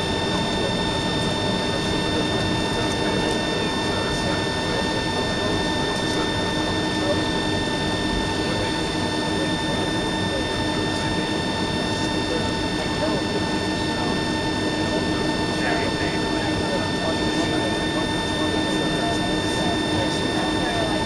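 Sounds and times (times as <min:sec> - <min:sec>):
jet engines whining in cabin: 0:00.0 - 0:21.0.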